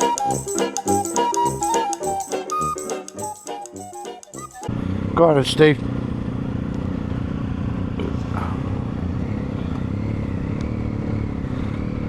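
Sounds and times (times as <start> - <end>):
motorcycle engine idling: 4.7 - 11.8.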